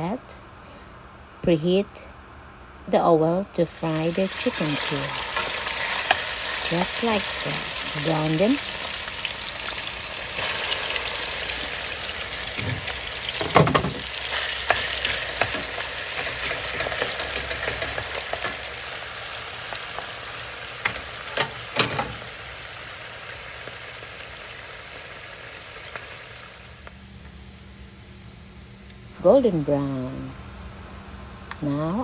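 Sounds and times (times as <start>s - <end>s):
chicken sizzling in hot oil: 3.8s - 29.1s.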